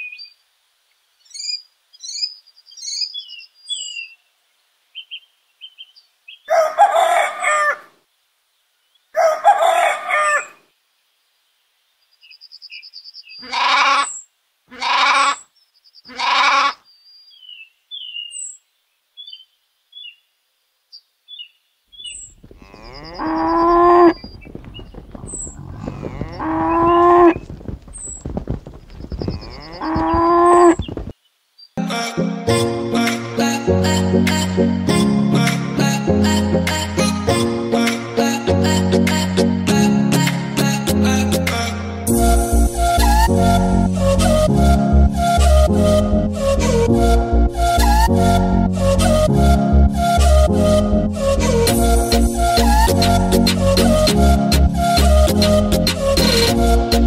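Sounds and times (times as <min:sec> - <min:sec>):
small birds chirping: 0:00.0 - 0:06.8, 0:10.4 - 0:14.4, 0:15.2 - 0:31.8
short animal calls: 0:13.4 - 0:16.8, 0:22.1 - 0:28.3, 0:28.9 - 0:31.1
cows mooing: 0:22.4 - 0:27.5, 0:29.3 - 0:30.8.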